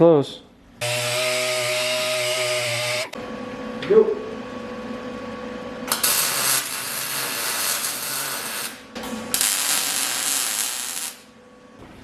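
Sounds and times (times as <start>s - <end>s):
power tool cutting steel tube: 0.8s - 3.2s.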